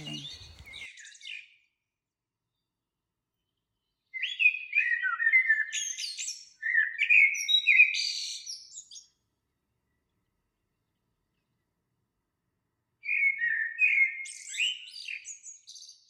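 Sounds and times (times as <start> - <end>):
songbird singing: 0.0 - 1.6.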